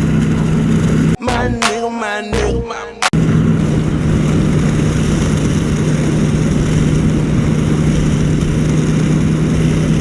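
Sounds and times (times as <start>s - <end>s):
motorcycle engine running: 0.0s - 1.2s, 3.2s - 10.0s
wind rushing over microphone: 3.2s - 10.0s.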